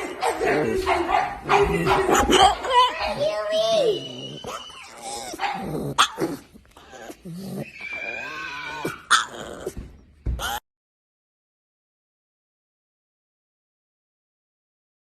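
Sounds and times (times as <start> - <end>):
dog barking and growling: 0.0 - 10.6.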